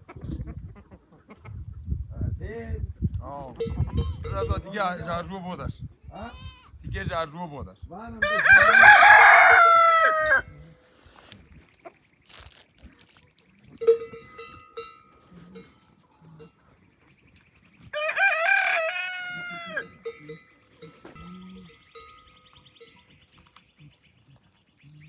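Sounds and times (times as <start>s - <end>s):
soft clucks: 0.0s - 1.8s
rooster crowing: 8.2s - 10.5s, 18.0s - 20.0s.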